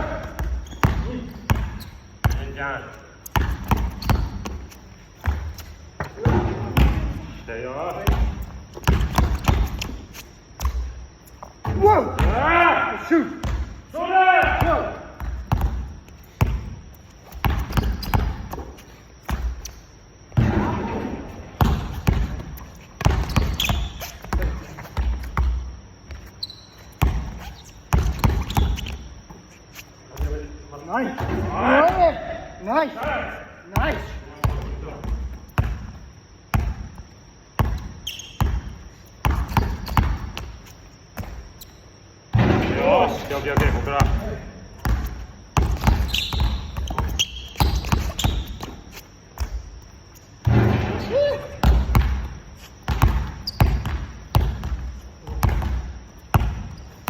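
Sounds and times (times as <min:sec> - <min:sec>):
basketballs bouncing on gym floor: 0:00.0 - 0:29.4, 0:30.0 - 0:41.7, 0:42.3 - 0:57.0
high squeak: 0:23.2 - 0:24.3, 0:26.3 - 0:29.1, 0:38.0 - 0:38.4, 0:45.8 - 0:49.1.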